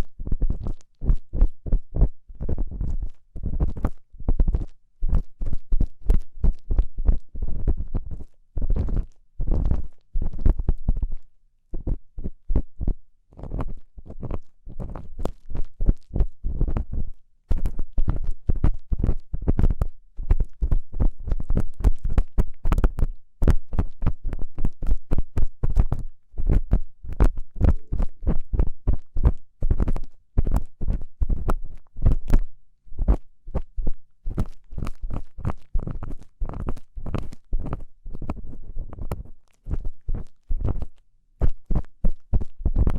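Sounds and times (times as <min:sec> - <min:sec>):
tool scraping in microphone ear: 0:33.0 - 0:42.9.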